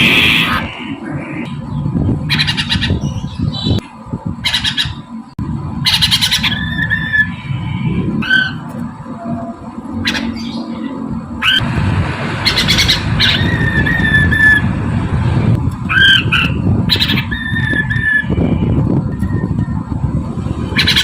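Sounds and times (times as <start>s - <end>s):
bird calling and chattering: 0.0s - 5.2s, 5.8s - 8.8s, 9.9s - 11.6s, 12.4s - 14.7s, 15.8s - 19.5s
steady low rumble: 0.0s - 21.0s.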